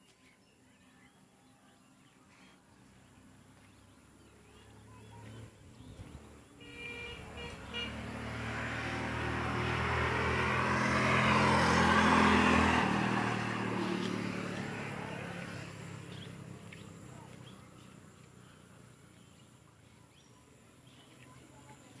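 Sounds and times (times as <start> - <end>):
vehicle passing by: 2.7 - 20.0.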